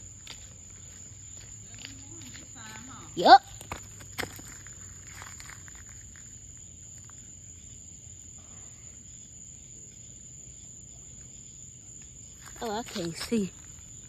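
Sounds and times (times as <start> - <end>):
cricket trill: 0.0 - 14.0
faint crackles: 3.6 - 7.3.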